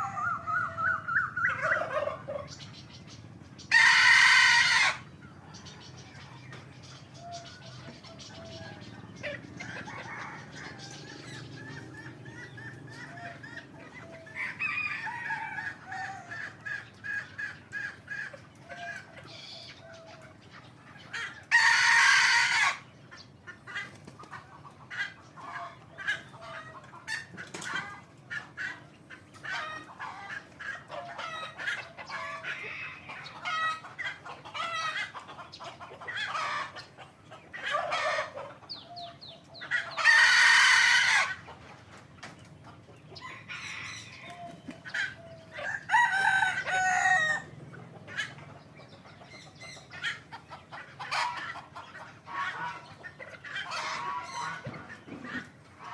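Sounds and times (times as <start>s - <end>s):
chicken clucking: 0.0s - 55.9s
rooster crowing: 14.2s - 16.4s, 45.3s - 47.5s.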